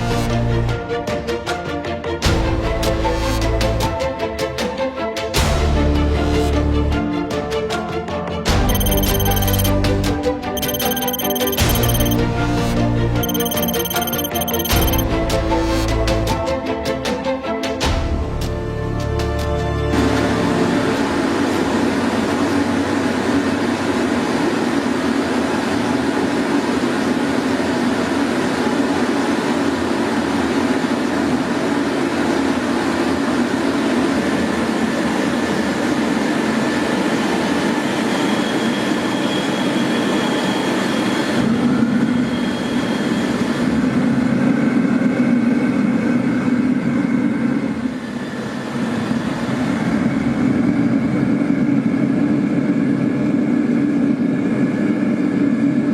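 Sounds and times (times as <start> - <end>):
faint high tones: 8.7 - 9.7, 10.6 - 12.2, 13.2 - 15.0.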